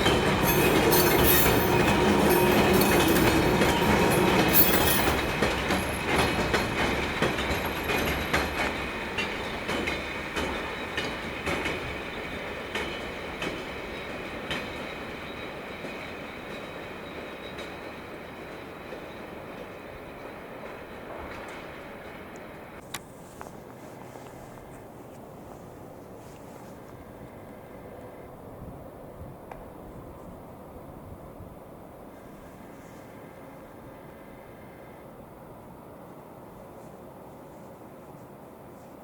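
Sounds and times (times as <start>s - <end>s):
faint high wheel squeal: 0.0s - 6.5s, 10.4s - 22.8s
train wheels clicking over rail joints: 0.0s - 24.9s.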